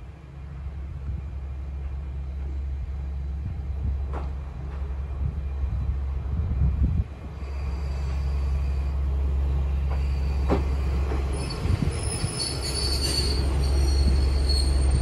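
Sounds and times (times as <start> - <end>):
diesel railcar rumble: 0.0 - 15.0
high-pitched brake squeal: 9.9 - 15.0.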